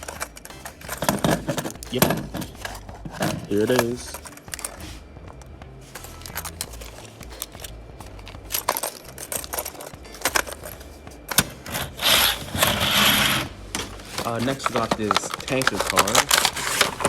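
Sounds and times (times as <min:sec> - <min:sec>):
plastic toy clicks and rattles: 0:00.0 - 0:04.8, 0:06.0 - 0:13.4, 0:14.2 - 0:17.0
rustling: 0:11.6 - 0:17.0.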